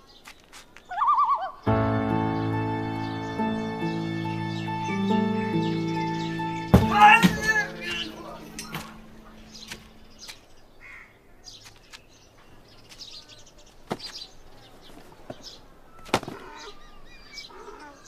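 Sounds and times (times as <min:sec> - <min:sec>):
small birds chirping faintly: 0:00.0 - 0:18.0
sharp knocks: 0:06.7 - 0:07.9.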